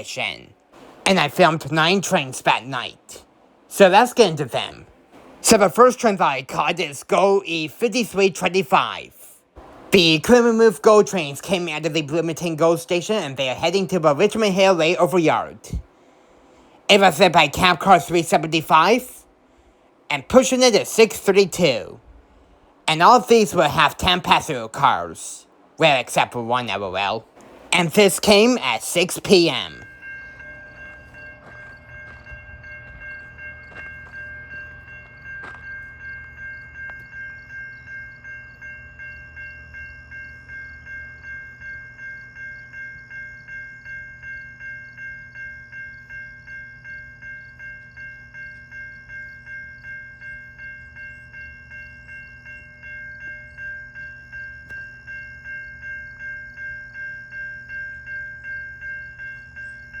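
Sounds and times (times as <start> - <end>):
train rumbling past: 0.0 - 44.7
level-crossing warning bell ringing: 0.0 - 60.0.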